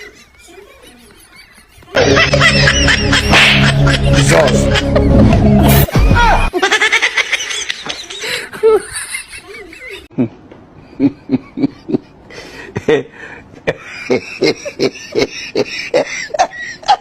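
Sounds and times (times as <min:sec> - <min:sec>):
person laughing: 0:00.0 - 0:10.4.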